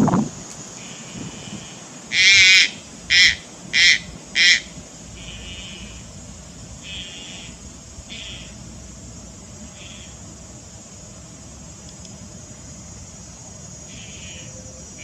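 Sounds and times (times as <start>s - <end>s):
heron harsh calls: 1.4s - 6.0s, 6.8s - 8.5s.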